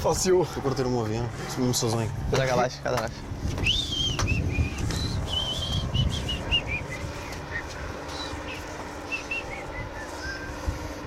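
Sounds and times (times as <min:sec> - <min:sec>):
low rumble: 0:00.0 - 0:11.0
small birds chirping: 0:03.5 - 0:10.6.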